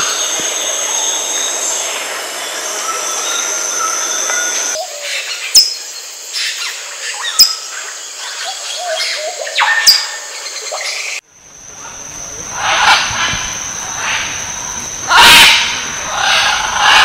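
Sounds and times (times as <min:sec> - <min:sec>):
rainforest chorus: 0:00.0 - 0:17.0
bird sharp high calls: 0:11.8 - 0:17.0.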